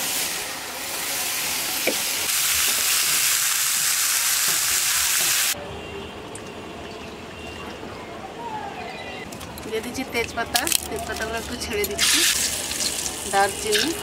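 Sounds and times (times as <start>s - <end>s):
vegetables sizzling in hot oil: 0.0s - 5.6s, 11.2s - 14.0s.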